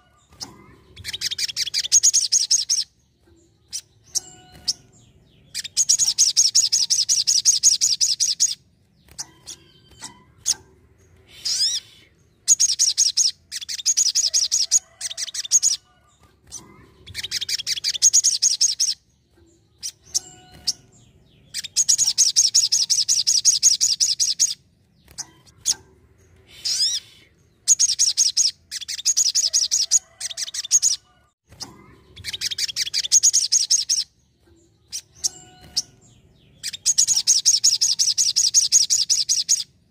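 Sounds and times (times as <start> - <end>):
bird trilling rapidly: 11.3 - 15.8, 26.6 - 31.0.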